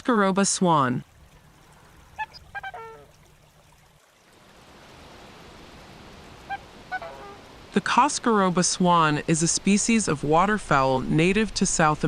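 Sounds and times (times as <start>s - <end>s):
faint running water: 0.0s - 12.0s
short faint calls: 6.4s - 7.5s.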